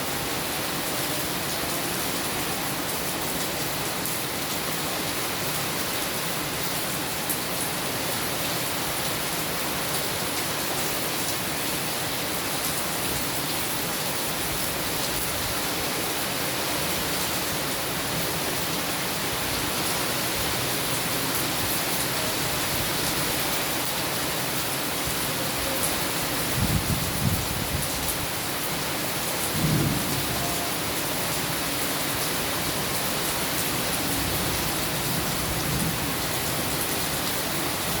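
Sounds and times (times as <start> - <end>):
heavy rain falling: 0.0 - 38.0
low rumble of thunder: 29.4 - 30.5.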